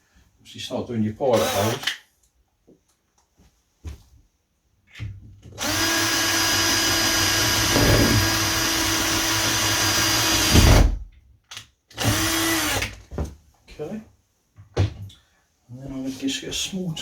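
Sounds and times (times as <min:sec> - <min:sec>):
power drill drilling: 0:01.3 - 0:01.9, 0:05.6 - 0:10.9, 0:12.0 - 0:12.9.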